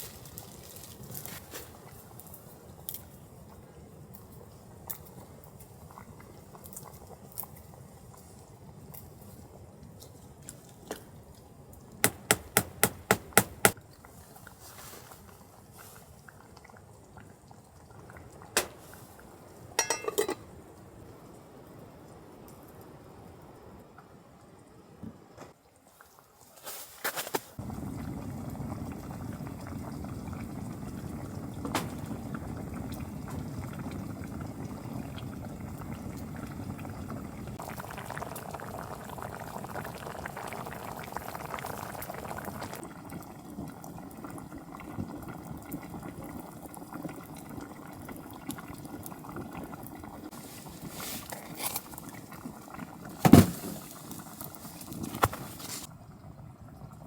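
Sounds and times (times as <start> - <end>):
water boiling and bubbling: 0.0 - 24.7, 27.6 - 57.0
sharp knock: 12.0 - 13.8.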